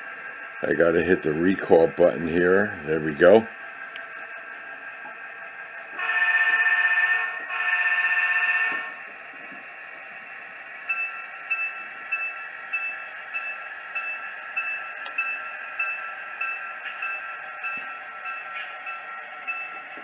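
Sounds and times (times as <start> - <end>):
locomotive engine running: 0.0 - 20.0
model locomotive horn blast: 6.0 - 9.0
locomotive bell ringing: 10.9 - 20.0.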